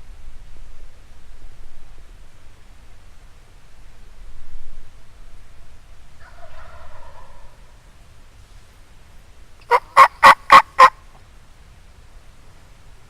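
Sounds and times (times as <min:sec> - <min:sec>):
turkey calling: 0:09.6 - 0:11.0.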